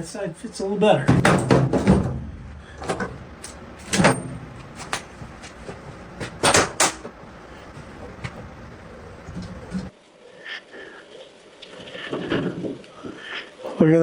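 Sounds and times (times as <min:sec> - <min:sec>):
sharp knocks and clunks: 0:01.1 - 0:07.2.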